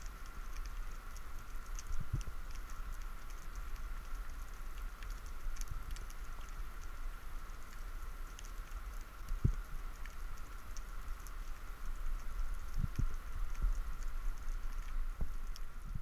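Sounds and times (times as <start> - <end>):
faint crackling clicks: 0.0 - 16.0
faint steady tone: 0.0 - 16.0
underwater rumble of moving water: 0.0 - 16.0.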